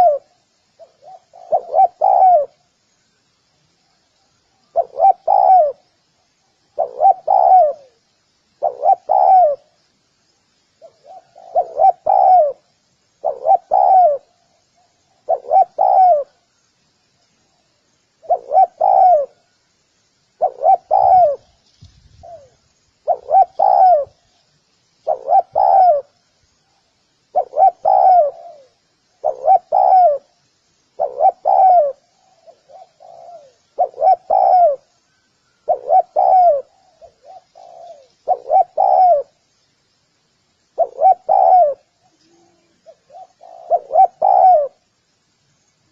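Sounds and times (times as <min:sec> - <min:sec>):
dove cooing: 0:00.0 - 0:02.6, 0:04.6 - 0:06.0, 0:06.7 - 0:08.0, 0:08.6 - 0:09.8, 0:10.8 - 0:16.4, 0:18.2 - 0:19.5, 0:20.4 - 0:21.5, 0:22.1 - 0:24.3, 0:25.0 - 0:26.2, 0:27.3 - 0:30.4, 0:31.0 - 0:34.9, 0:35.5 - 0:39.4, 0:40.8 - 0:44.8.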